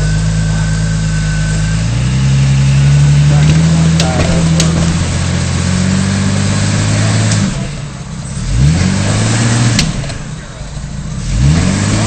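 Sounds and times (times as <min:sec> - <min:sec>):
off-road vehicle engine: 0:00.0 - 0:12.0.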